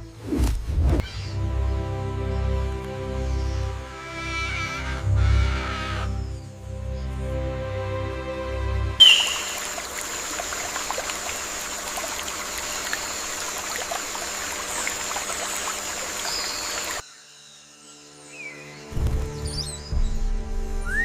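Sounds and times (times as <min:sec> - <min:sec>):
stream water trickling: 0:09.0 - 0:17.0.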